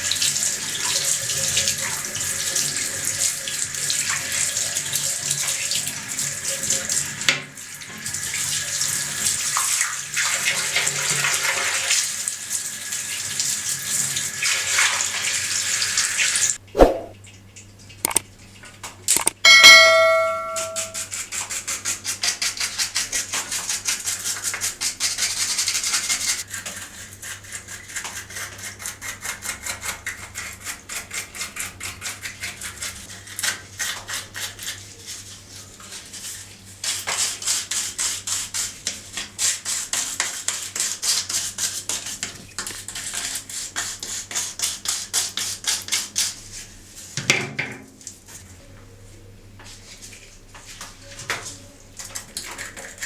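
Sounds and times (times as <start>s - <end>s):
brush scrubbing a horn: 19.7s - 47.2s, 49.7s - 53.0s.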